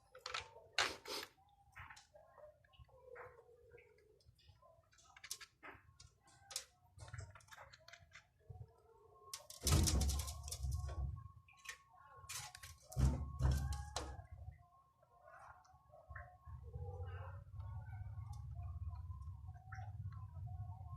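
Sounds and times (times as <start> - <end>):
small hard parts clicking: 9.3 - 10.8
clatter and thump: 9.5 - 10.8.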